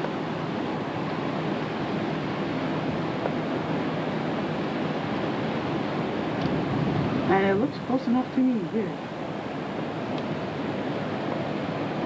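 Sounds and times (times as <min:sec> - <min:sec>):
wind on microphone: 0:05.1 - 0:07.9.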